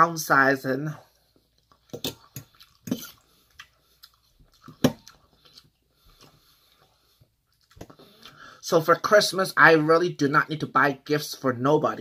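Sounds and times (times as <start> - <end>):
chewing and mouth noises: 1.2 - 8.4.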